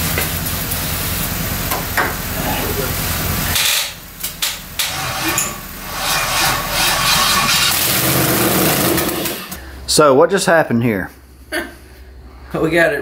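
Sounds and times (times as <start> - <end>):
engine running rough: 0.0 - 9.6.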